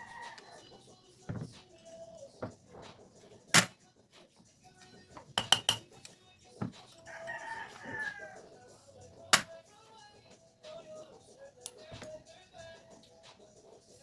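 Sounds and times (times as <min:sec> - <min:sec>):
rooster crowing: 0:00.0 - 0:00.6, 0:07.0 - 0:08.6.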